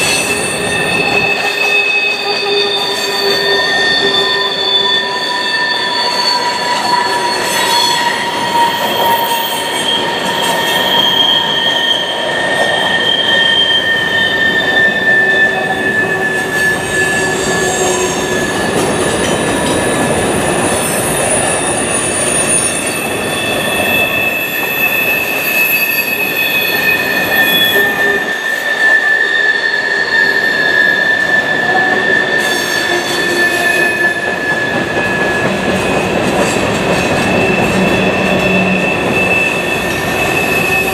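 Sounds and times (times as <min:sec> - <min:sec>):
steel wheels squealing on rail: 0:00.0 - 0:40.9
train wheels rumbling: 0:30.0 - 0:40.9.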